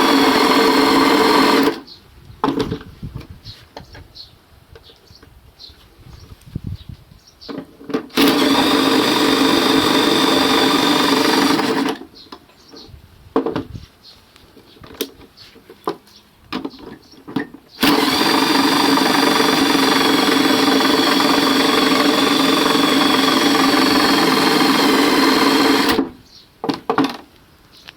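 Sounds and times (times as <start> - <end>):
motor whining and humming: 0.0 - 1.9, 8.2 - 12.0, 17.8 - 26.2.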